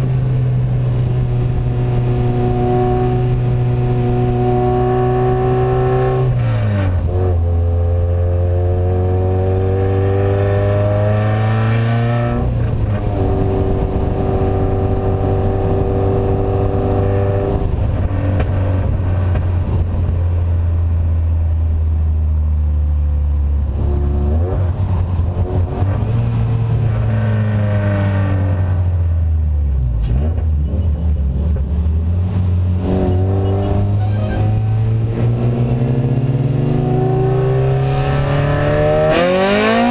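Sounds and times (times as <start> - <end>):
vehicle engine revving under load: 30.0 - 39.9.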